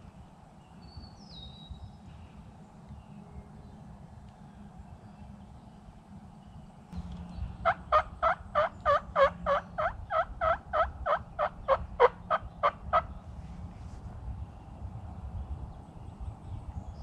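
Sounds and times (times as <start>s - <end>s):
turkey yelping: 7.6s - 13.1s.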